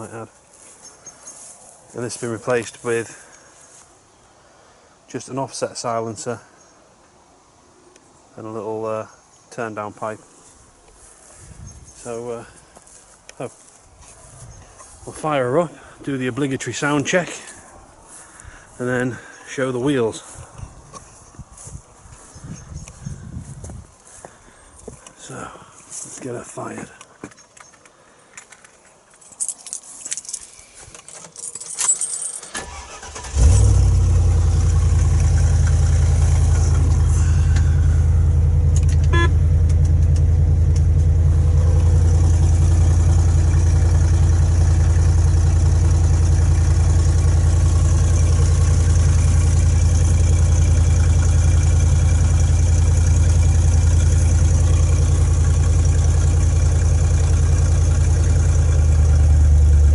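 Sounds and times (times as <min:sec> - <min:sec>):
small clicks and rustles: 0:26.9 - 0:32.6
car engine starting and idling: 0:31.9 - 0:59.9.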